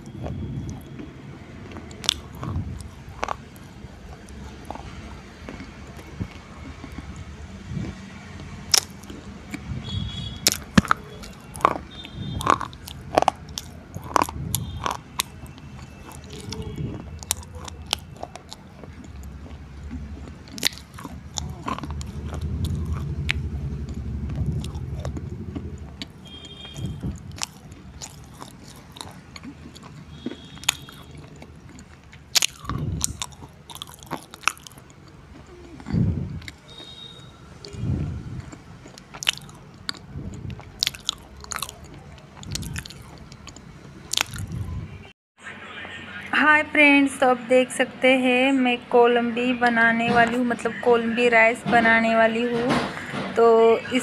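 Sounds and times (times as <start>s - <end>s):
lip smacks: 0.0s - 9.7s, 10.4s - 44.7s
person chewing and crunching: 0.0s - 44.8s
low rumble: 21.0s - 28.0s, 35.7s - 36.5s.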